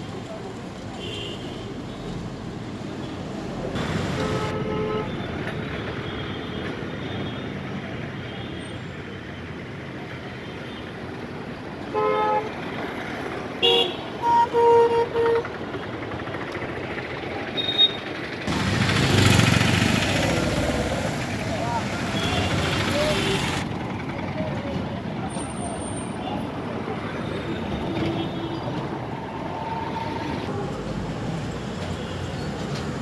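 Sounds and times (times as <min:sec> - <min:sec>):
road traffic hum: 0:00.0 - 0:33.0
vehicle passing close: 0:18.5 - 0:24.0.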